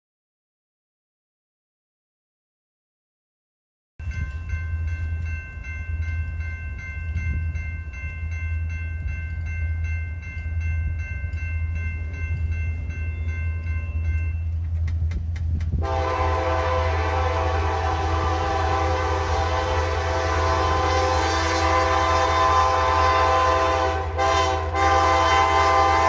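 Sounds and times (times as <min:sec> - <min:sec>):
crossing bell dinging: 0:04.0 - 0:15.1, 0:15.8 - 0:26.0
diesel locomotive rumble: 0:04.0 - 0:26.0
train horn: 0:15.8 - 0:26.0.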